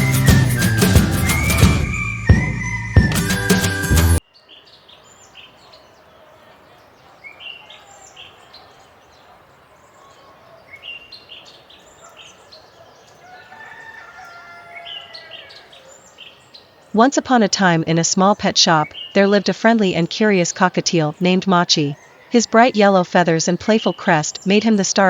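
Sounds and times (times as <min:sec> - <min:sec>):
intro tune: 0:00.0 - 0:04.2
small birds chirping: 0:04.2 - 0:25.0.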